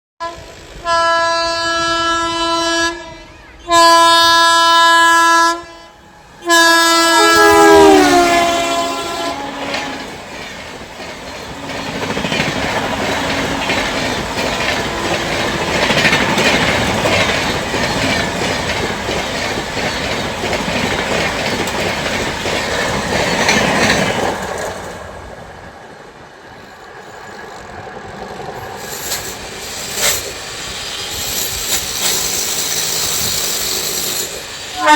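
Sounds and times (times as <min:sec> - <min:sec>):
train horn blasts: 0:00.2 - 0:10.3, 0:11.5 - 0:17.1
train rushing past: 0:00.2 - 0:34.9
wheels clacking over rail joints: 0:06.4 - 0:34.8.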